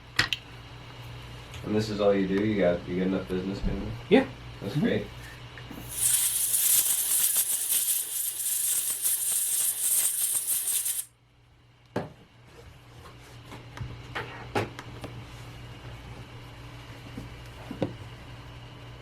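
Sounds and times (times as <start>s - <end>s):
compressed air hissing: 5.8s - 11.1s.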